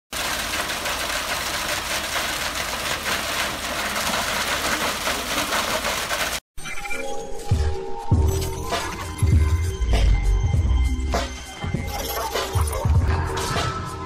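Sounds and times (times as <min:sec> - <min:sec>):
engine running: 0:00.2 - 0:06.4.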